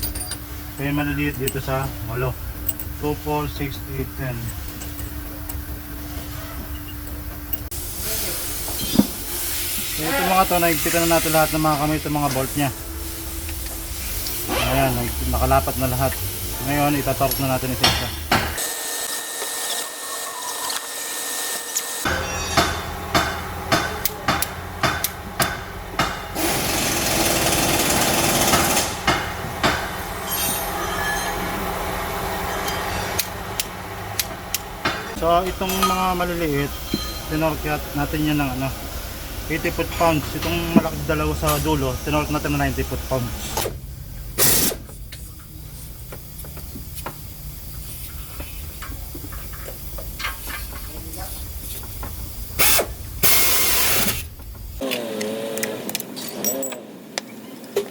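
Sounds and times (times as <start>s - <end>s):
tools and engine parts clicking: 0.0s - 5.7s, 21.7s - 31.6s, 54.1s - 57.9s
loud hissing: 7.7s - 18.6s, 50.4s - 54.4s.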